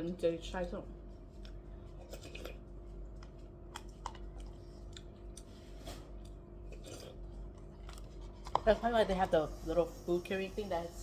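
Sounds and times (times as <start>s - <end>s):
steady low hum: 0.0s - 11.0s
person chewing food: 1.1s - 8.7s.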